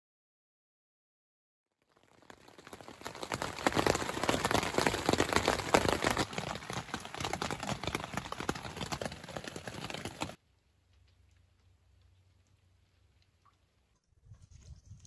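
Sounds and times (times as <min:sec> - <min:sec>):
rain drumming on a tent: 0:01.8 - 0:13.4.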